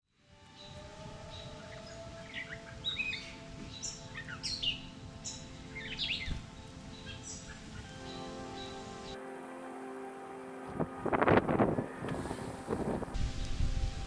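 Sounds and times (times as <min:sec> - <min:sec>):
birds chirping: 0:00.4 - 0:13.2
steady held tones: 0:07.8 - 0:13.2.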